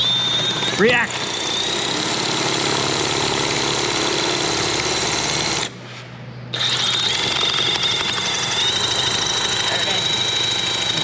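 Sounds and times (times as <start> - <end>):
power drill boring into steel: 0.0 - 5.7, 6.6 - 11.0.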